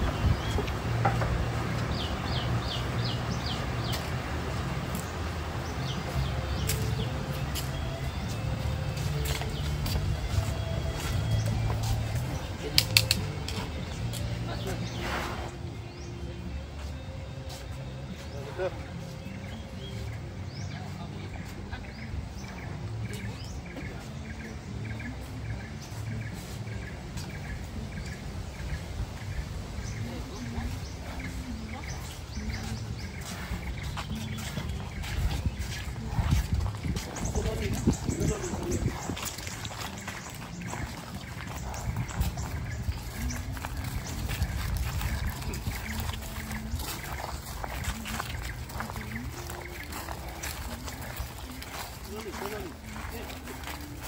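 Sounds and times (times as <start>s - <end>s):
bird chirping: 0.0s - 54.0s
murmur of distant voices: 0.0s - 54.0s.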